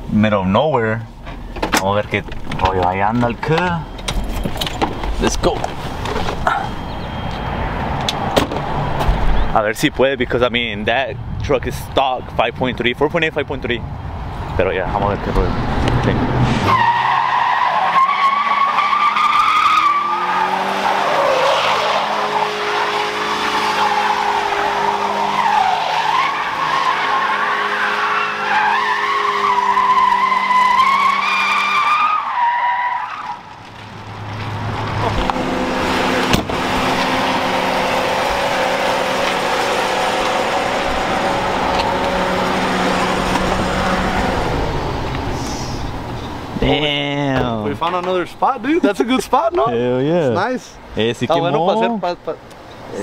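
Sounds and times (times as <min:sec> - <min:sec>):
tires squealing: 0:13.9 - 0:49.7
truck engine at high revs: 0:15.2 - 0:32.3, 0:33.9 - 0:46.2.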